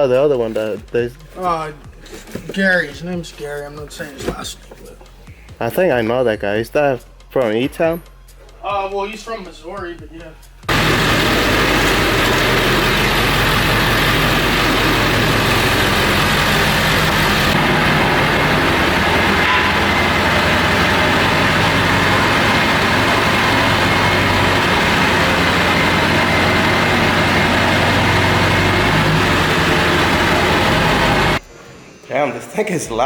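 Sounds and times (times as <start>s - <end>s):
diesel truck engine idling: 10.7s - 31.4s.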